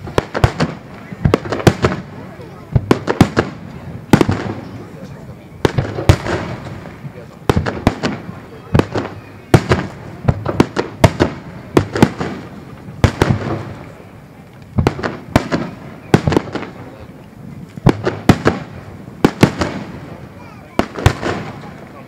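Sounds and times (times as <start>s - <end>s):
firework shells bursting: 17.6s - 22.0s.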